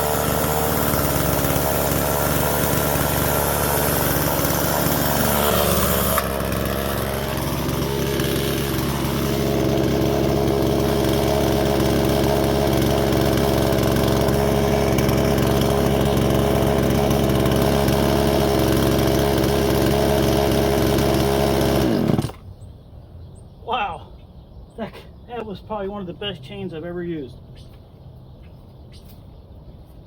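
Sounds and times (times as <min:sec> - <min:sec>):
chainsaw cutting hardwood: 0:00.0 - 0:22.5.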